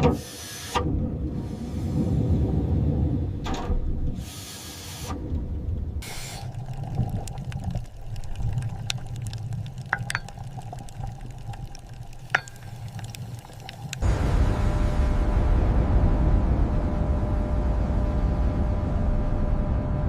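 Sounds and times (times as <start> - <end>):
low steady rumble: 0.8 - 4.2, 5.1 - 20.0
hissing bursts of air: 4.2 - 5.1.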